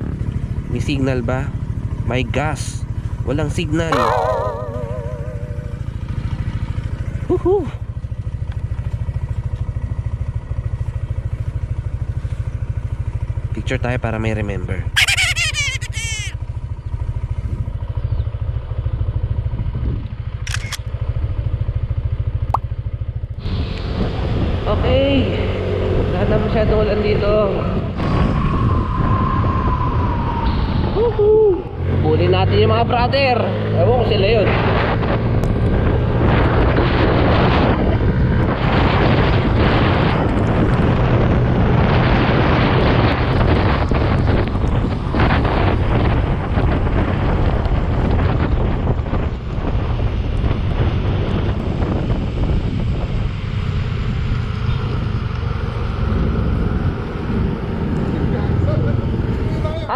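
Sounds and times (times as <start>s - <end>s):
motorcycle engine idling: 1.4s - 15.0s, 16.4s - 23.4s
short clicks: 20.4s - 20.9s
wind rushing over microphone: 23.4s - 59.9s.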